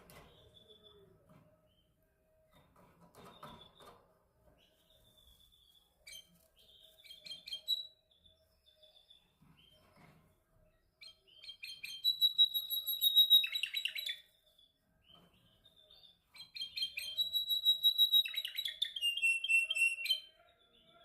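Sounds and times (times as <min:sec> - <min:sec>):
canary singing: 0:04.6 - 0:10.0, 0:11.0 - 0:21.0.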